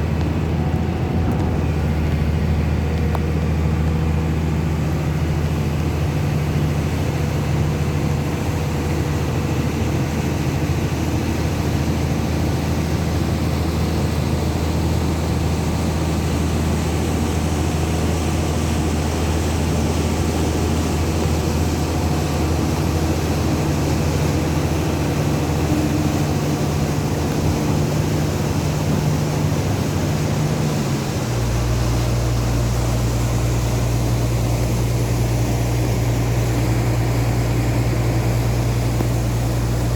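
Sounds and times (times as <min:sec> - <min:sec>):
low mechanical hum: 0:00.0 - 0:39.9
heavy rain falling: 0:11.8 - 0:39.9.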